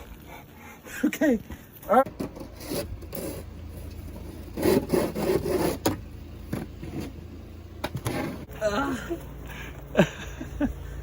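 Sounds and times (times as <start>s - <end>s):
rough scraping and rubbing: 2.1s - 7.3s, 7.9s - 8.5s.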